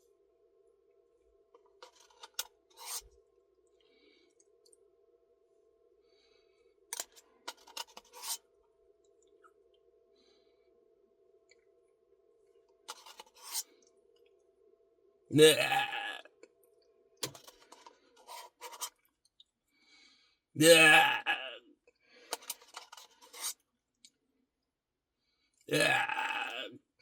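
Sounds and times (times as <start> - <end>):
faint steady hum: 0.0 - 27.0
spoon scraping and clicking: 1.8 - 3.1, 7.0 - 8.4, 12.9 - 13.7, 17.2 - 19.0, 22.3 - 23.6.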